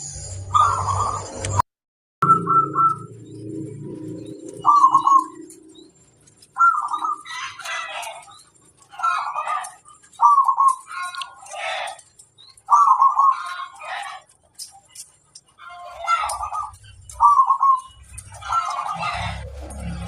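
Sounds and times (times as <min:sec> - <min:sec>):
dove cooing: 0:04.2 - 0:14.4, 0:15.6 - 0:20.0.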